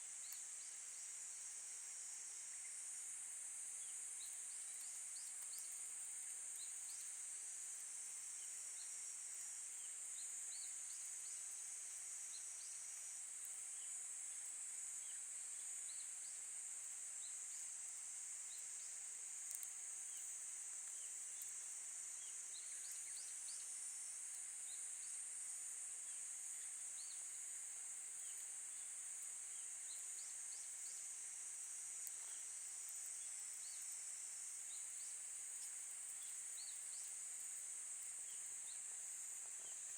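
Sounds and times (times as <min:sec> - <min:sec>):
high-pitched insect chorus: 0:08.2 - 0:39.9.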